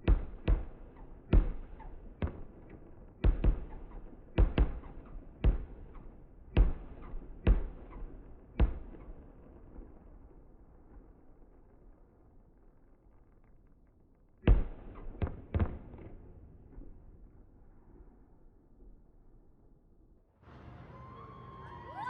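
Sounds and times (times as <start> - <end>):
fireworks booming: 14.4 - 17.1.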